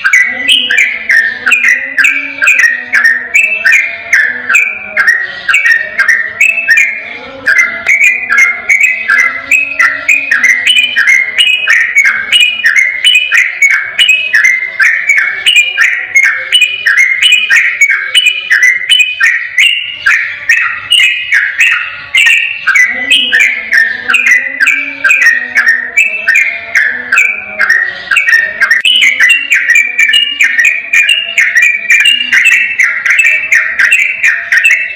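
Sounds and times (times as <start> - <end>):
bird singing whistled notes: 0.0 - 34.9.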